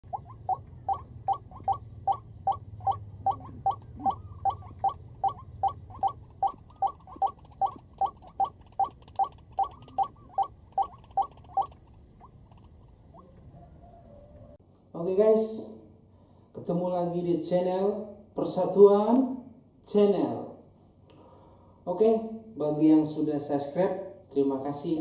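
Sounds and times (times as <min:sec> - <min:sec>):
bird croaking call: 0:00.0 - 0:14.6.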